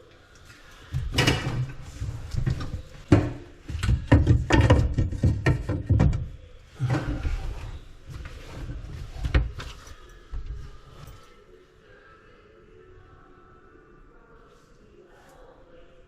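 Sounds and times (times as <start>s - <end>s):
hard objects clunking and scraping: 0.9s - 11.2s.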